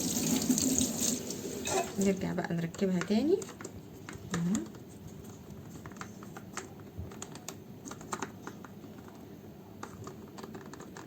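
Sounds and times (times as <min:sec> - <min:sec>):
plastic parts clicking: 0:05.6 - 0:11.0.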